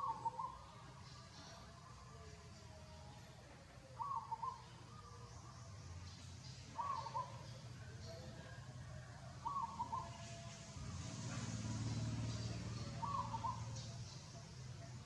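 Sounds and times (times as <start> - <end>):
animal calling: 6.8 - 7.5, 12.9 - 13.9.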